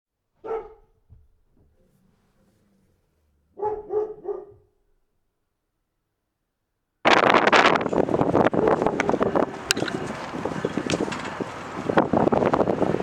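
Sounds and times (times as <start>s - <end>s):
dog barking: 0.4s - 1.0s, 3.5s - 4.8s.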